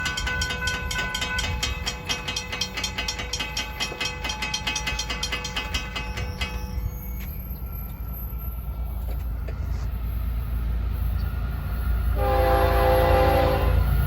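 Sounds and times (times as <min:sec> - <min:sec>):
wheels clicking over rail joints: 0:00.0 - 0:09.9
train low rumble: 0:00.0 - 0:14.0
faint steady squeal: 0:05.6 - 0:14.0.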